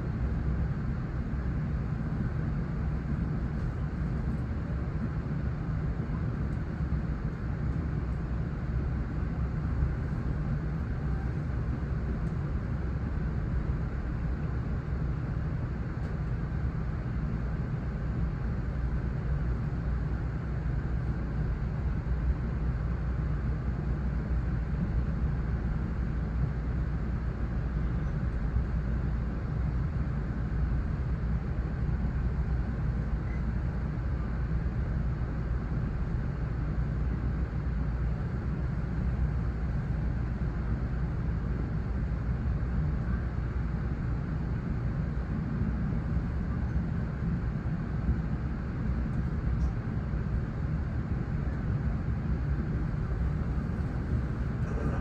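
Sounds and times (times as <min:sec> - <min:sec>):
train rumbling: 0:41.5 - 0:55.0.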